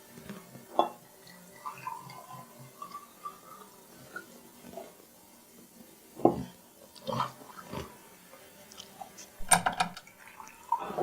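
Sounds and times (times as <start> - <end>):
tableware clinking: 0.7 - 1.0, 9.4 - 10.0
dishes knocking and tapping: 9.4 - 10.0.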